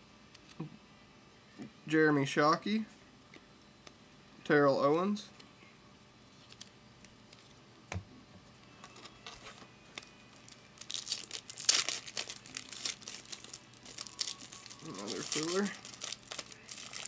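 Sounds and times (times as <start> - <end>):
wrapper crinkling: 9.2 - 17.0
foil pack tearing open: 9.4 - 17.0.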